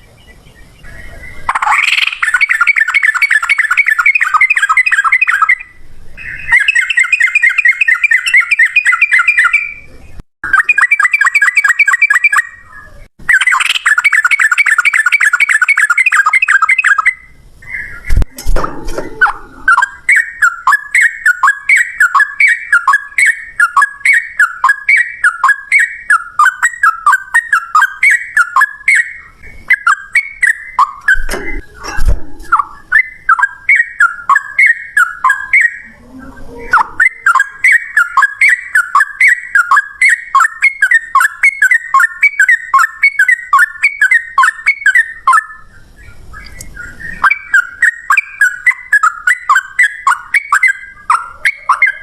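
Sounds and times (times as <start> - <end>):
bird chirping song: 0.0 - 52.0
low thud: 18.1 - 19.6.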